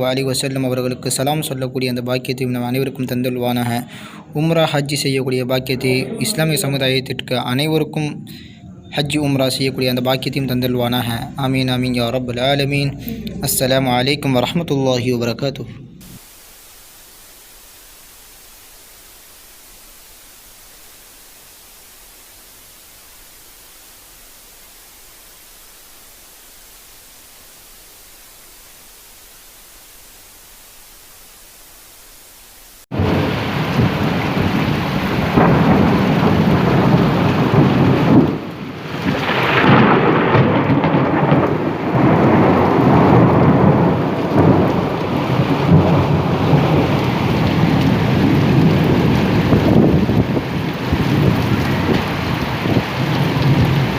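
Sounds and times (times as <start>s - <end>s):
faint steady hiss: 0.0s - 33.1s
heavy rain falling: 0.0s - 53.9s.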